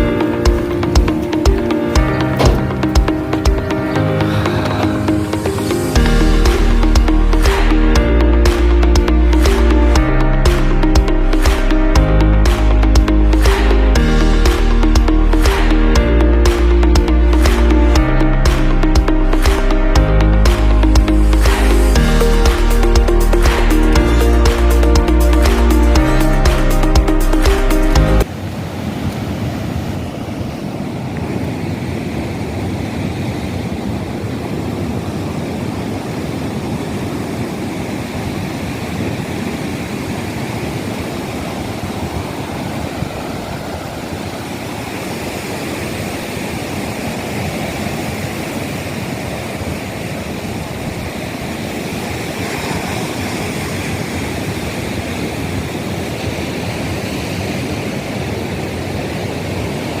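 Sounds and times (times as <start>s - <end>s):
wind rushing over microphone: 28.2s - 60.0s.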